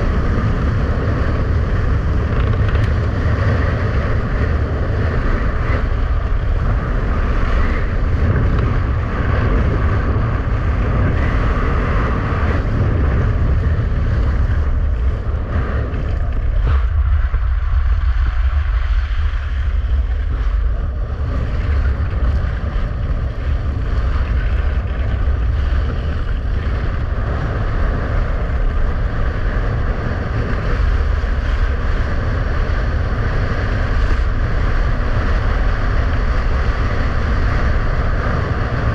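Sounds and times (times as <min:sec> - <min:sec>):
skis running on rough ice: 0:00.0 - 0:38.9
wind buffeting microphone: 0:00.0 - 0:38.9.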